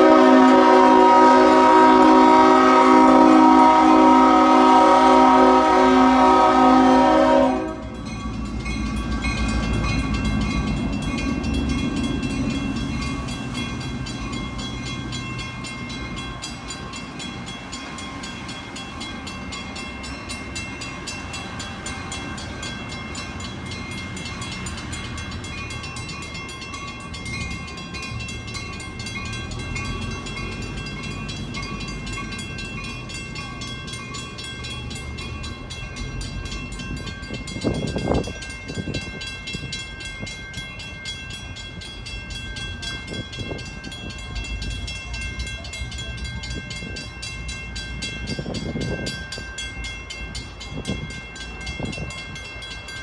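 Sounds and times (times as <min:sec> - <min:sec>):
locomotive horn: 0:00.0 - 0:08.0
crossing warning bell ringing: 0:00.0 - 0:53.0
diesel locomotive engine rumbling: 0:00.0 - 0:53.0
passenger coaches rolling over crossing: 0:00.0 - 0:53.0.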